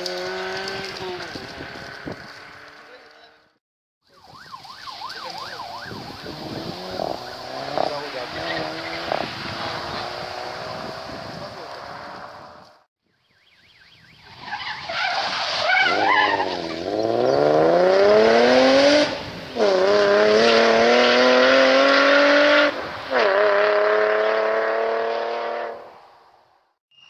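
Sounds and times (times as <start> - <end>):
rally car engine at full throttle: 0.0 - 3.2.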